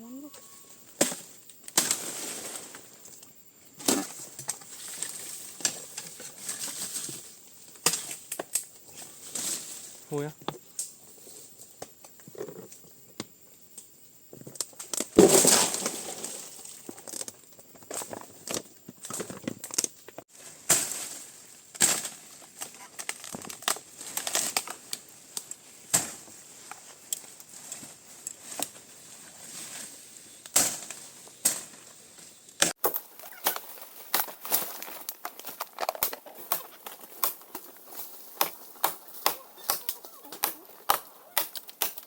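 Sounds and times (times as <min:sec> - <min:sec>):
material rustling and crunching: 0:32.7 - 0:42.0.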